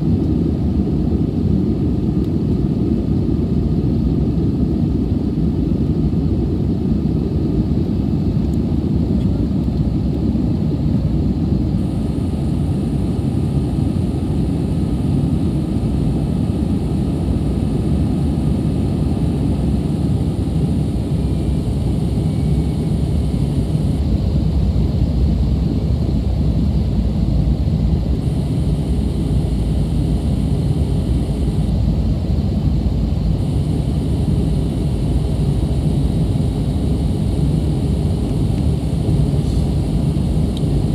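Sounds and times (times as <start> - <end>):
jet cabin engine roar: 0.0 - 40.9.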